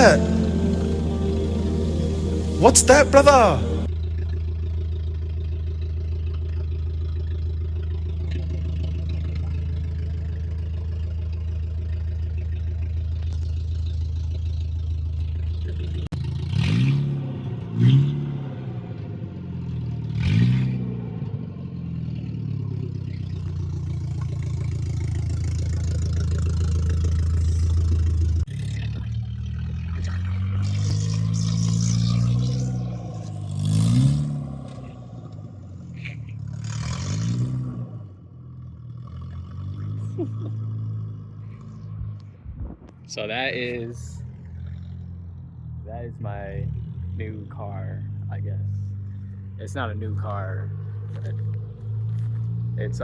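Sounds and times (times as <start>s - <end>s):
car engine and exhaust revving: 0.0s - 53.0s.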